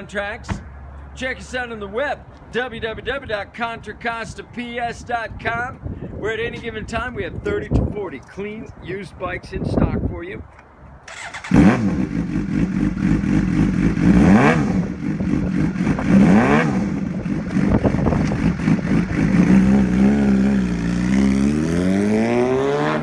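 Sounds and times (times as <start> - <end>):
motorcycle engine idling and revving: 11.1 - 23.0.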